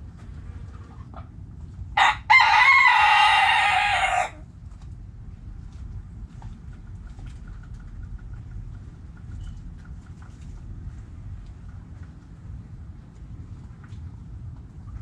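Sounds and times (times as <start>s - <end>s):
rooster crowing: 2.0s - 4.4s.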